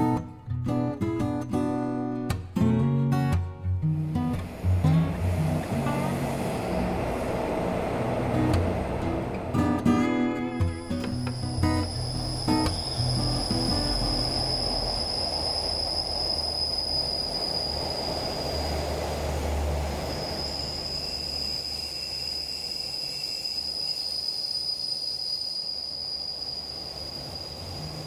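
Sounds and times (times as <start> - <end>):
locomotive engine rumble: 3.9 - 23.6
train carriages rolling by: 3.9 - 28.0
high squeal: 4.2 - 28.0.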